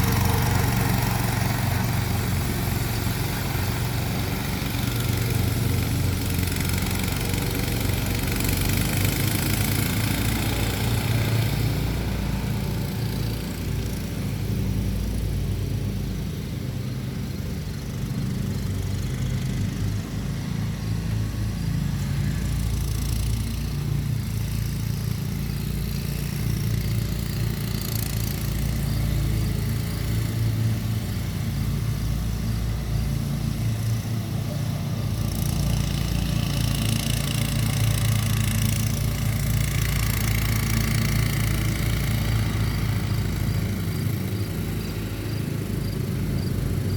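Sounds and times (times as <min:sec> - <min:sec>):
mower engine running: 0:00.0 - 0:46.9.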